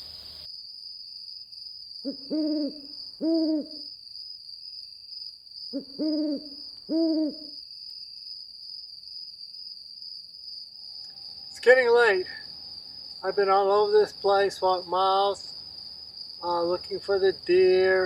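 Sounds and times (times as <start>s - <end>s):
night insects trilling: 0.0s - 18.0s
owl hooting: 2.0s - 3.9s, 5.7s - 7.6s.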